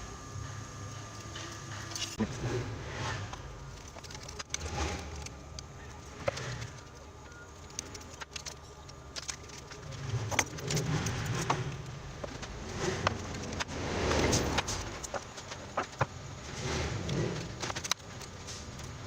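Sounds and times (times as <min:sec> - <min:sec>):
low steady hum: 0:00.0 - 0:19.0
small metal parts clinking: 0:03.7 - 0:12.5.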